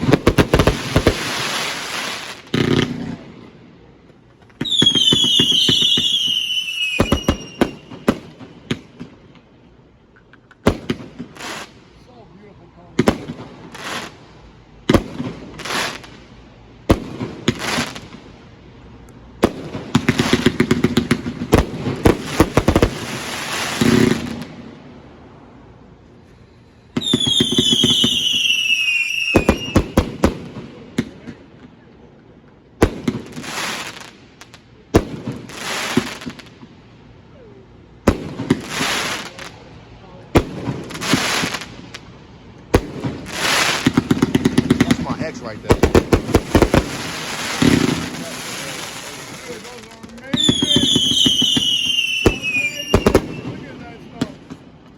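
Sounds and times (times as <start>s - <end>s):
firework bangs and crackling: 0.0s - 54.9s
whistling firework shots: 4.6s - 9.1s, 26.8s - 31.4s, 42.7s - 54.7s.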